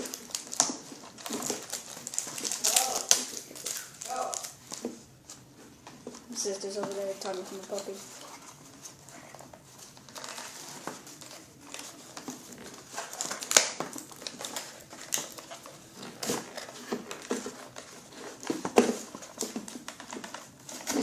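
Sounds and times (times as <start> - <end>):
packaging rustling: 0.0 - 21.0.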